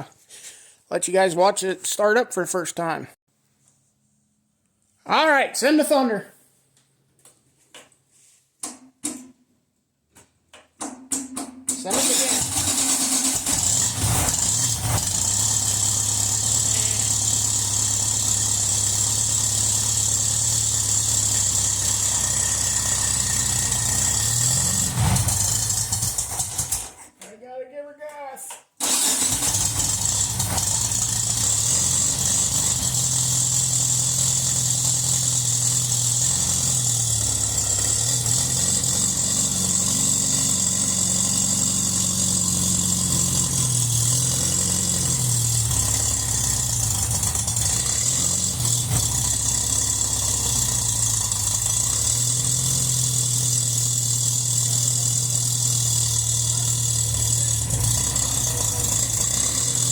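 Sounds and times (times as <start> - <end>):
car engine idling and revving: 11.9 - 27.0, 28.8 - 59.9.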